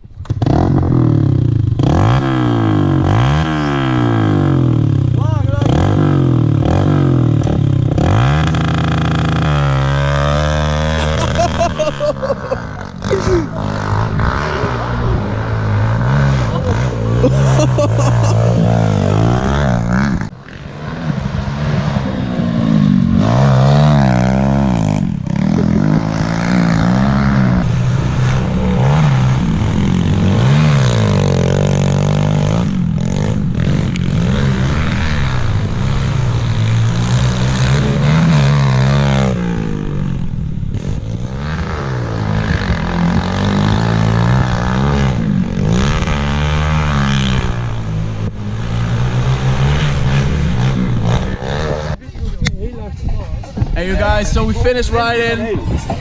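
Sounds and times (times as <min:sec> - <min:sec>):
pit bike engines revving: 0:00.0 - 0:56.0.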